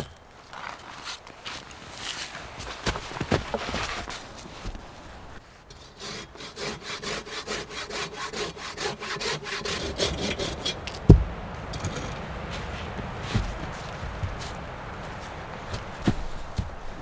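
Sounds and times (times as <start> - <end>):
hand saw cutting wood: 2.0 - 13.2
heavy thud: 11.0 - 17.0.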